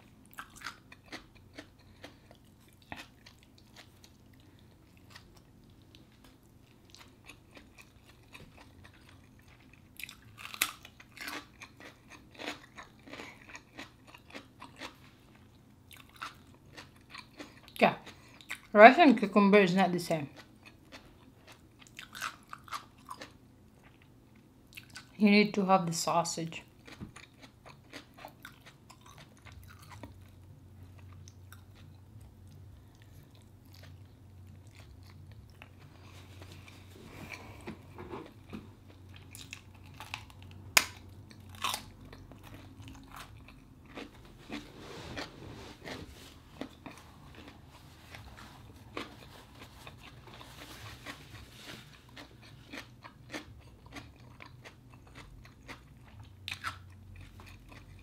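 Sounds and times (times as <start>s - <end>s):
person chewing food: 0.0s - 18.7s, 20.4s - 25.1s, 26.6s - 58.0s.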